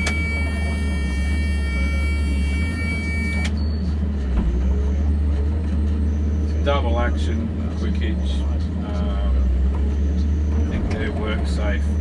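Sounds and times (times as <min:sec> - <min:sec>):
diesel engine deep drone: 0:00.0 - 0:12.0.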